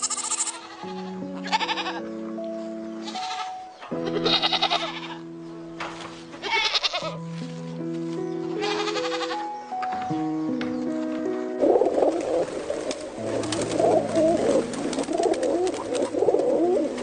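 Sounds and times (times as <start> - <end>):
animal bleating: 0.0 - 2.1, 3.0 - 5.2, 6.4 - 7.2, 8.5 - 9.5
music of simple held notes: 0.0 - 17.0.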